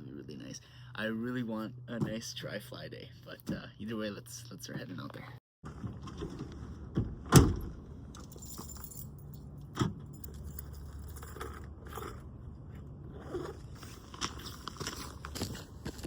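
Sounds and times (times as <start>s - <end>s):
thump: 6.9s - 7.8s
keys jingling and rustling: 8.2s - 12.0s.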